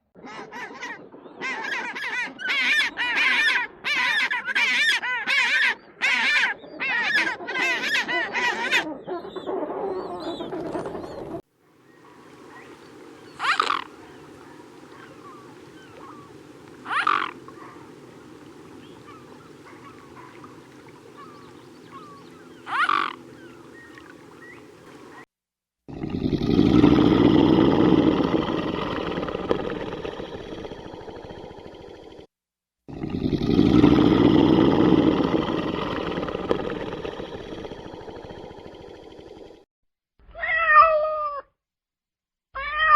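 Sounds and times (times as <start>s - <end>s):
animal calling: 0.2s - 25.2s.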